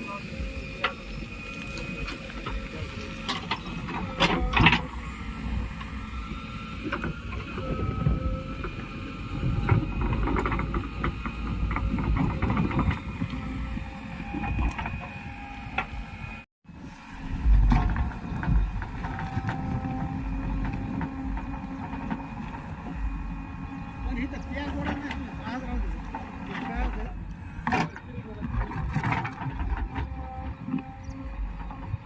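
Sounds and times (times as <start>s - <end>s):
backhoe engine rumble: 0.0s - 32.0s.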